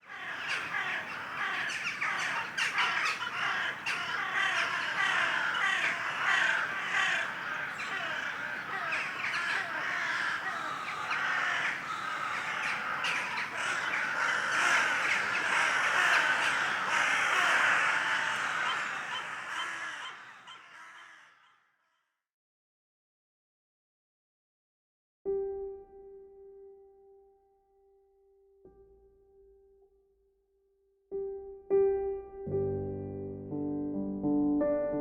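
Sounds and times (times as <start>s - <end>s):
chorus of birds calling: 0.0s - 21.6s.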